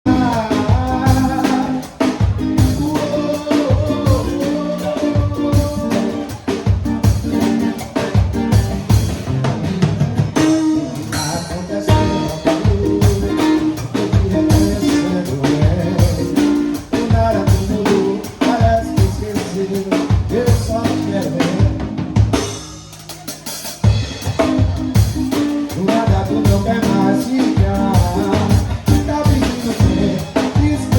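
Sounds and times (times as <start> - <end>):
drum kit beat: 0.0 - 30.9
live band playing: 0.0 - 30.9
person singing: 0.1 - 8.0, 10.4 - 22.0, 23.4 - 30.9
electric guitar: 0.1 - 30.9.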